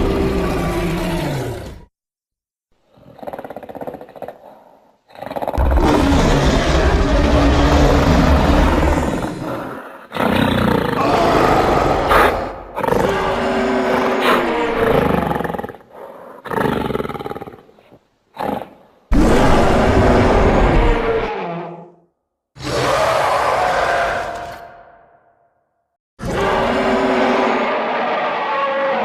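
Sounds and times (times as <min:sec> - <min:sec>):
monster roaring: 0:00.0 - 0:01.9, 0:05.6 - 0:15.7, 0:19.1 - 0:21.9, 0:22.6 - 0:25.0, 0:26.2 - 0:29.0.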